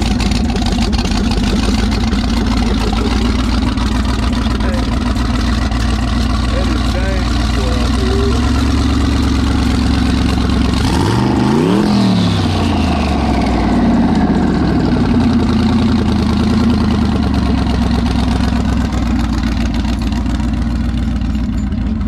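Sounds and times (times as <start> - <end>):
car engine idling and revving: 0.0 - 22.0
high turbo whine: 0.0 - 22.0.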